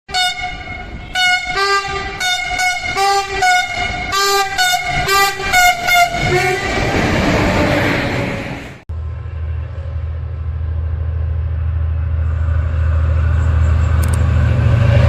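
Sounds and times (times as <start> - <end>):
locomotive horn short blasts: 0.1 - 6.8
passing train rumble: 0.1 - 15.0.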